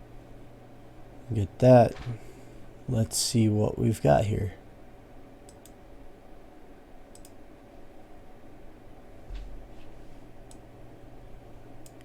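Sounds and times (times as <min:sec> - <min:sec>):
low steady hum: 0:00.0 - 0:12.0
computer mouse clicking: 0:05.4 - 0:05.8, 0:07.1 - 0:07.4.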